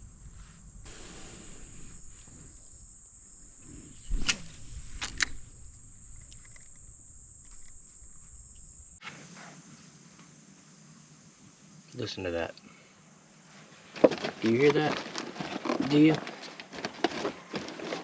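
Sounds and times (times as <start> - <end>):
high-pitched insect drone: 0.0 - 9.0.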